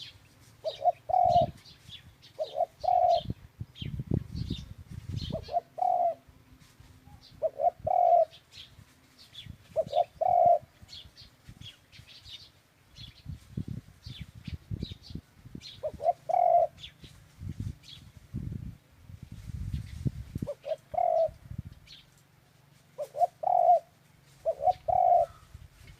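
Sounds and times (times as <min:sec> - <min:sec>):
small birds chirping faintly: 0:00.0 - 0:18.2
dove cooing: 0:00.6 - 0:01.6, 0:02.4 - 0:03.4, 0:05.2 - 0:06.3, 0:07.2 - 0:08.5, 0:09.7 - 0:10.7, 0:15.8 - 0:16.9, 0:20.4 - 0:21.4, 0:23.0 - 0:25.6.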